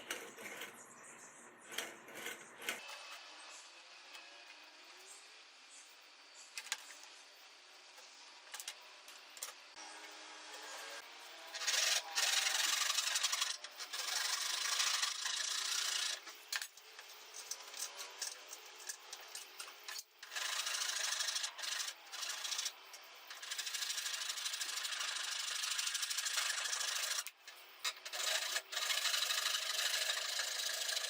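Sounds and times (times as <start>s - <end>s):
tool scraping a workpiece: 0.0s - 0.9s, 1.6s - 3.6s.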